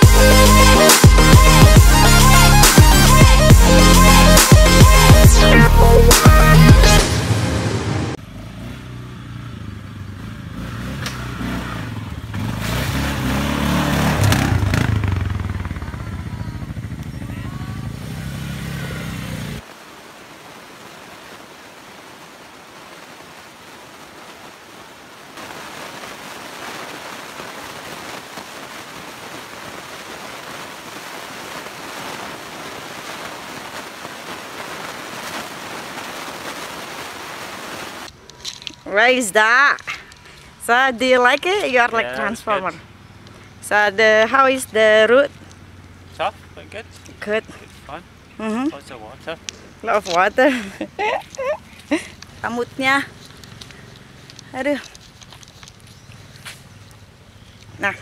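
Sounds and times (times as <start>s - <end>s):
atv engine running: 8.2s - 19.6s, 38.1s - 50.5s, 51.2s - 58.0s
steady hiss: 17.8s - 39.2s.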